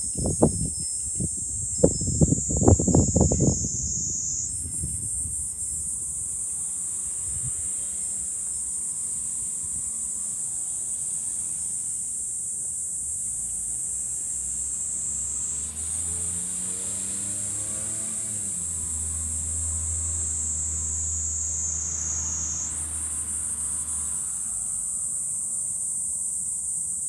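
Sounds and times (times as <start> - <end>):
cicadas droning: 0.0 - 27.0
vehicle engine passing: 13.6 - 25.4.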